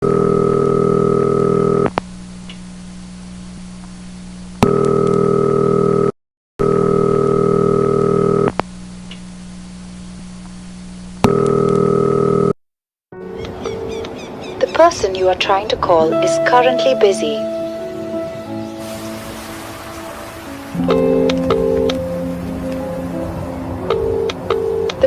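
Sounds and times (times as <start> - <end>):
telephone ringback tone: 23.9 - 25.0.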